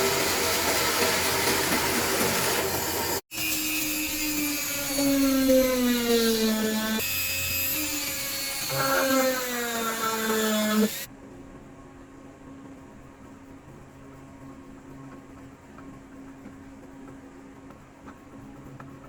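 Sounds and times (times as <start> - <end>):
power tool motor whining: 0.0 - 11.1.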